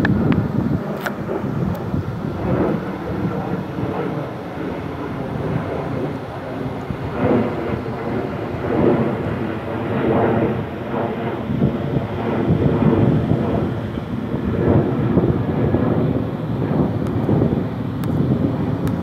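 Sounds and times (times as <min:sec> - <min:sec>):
jet engines rumbling at takeoff: 0:00.0 - 0:19.0.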